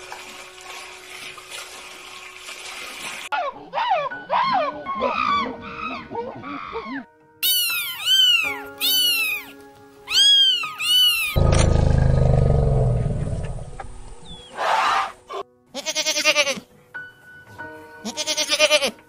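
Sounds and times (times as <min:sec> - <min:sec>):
light background music: 0:00.0 - 0:11.9, 0:13.4 - 0:19.0
cat meowing: 0:07.4 - 0:09.5, 0:10.1 - 0:11.4
deep elephant roar: 0:11.4 - 0:14.8
goat bleating: 0:15.7 - 0:16.7, 0:18.0 - 0:19.0.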